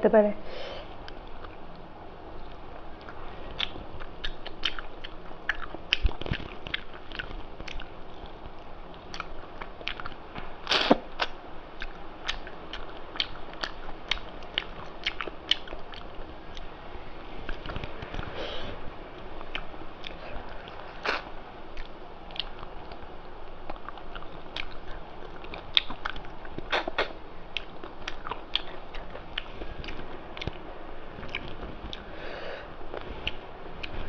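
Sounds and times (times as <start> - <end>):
chewing and crunching food: 1.0 - 16.7, 19.2 - 30.6, 31.2 - 32.2, 32.9 - 34.0
mouth clicks: 23.7 - 30.6.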